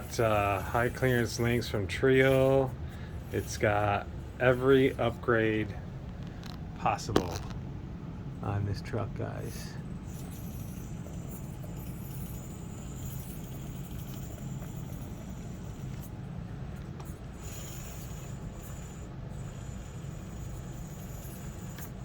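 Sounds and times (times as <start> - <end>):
low motor hum: 0.0 - 17.4
high whine of motor and gears: 0.0 - 22.0.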